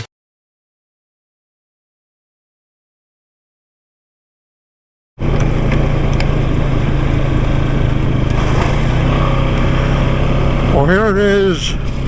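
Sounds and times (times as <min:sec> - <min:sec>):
off-road vehicle engine running: 0:05.2 - 0:12.0.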